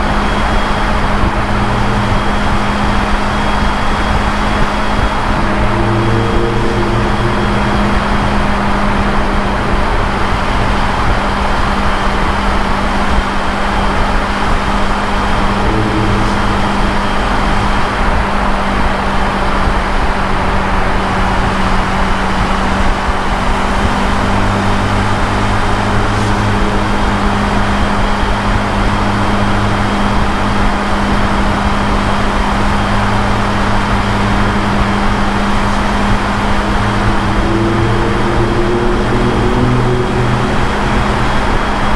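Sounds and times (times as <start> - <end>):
motorcycle engine cruising: 0.0 - 41.9
wind rush on microphone: 0.0 - 41.9.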